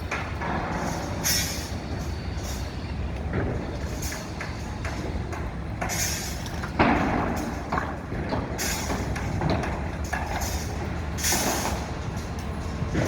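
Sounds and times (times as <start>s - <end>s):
low rumble of street traffic: 0.0s - 13.0s
vehicles passing: 0.0s - 13.0s.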